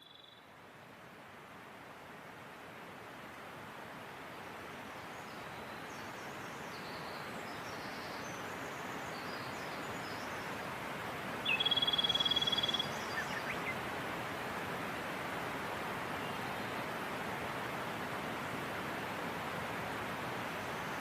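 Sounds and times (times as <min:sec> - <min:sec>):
faint bird chirps: 0:00.0 - 0:00.5, 0:11.4 - 0:13.8
mountain stream rushing: 0:00.6 - 0:21.0.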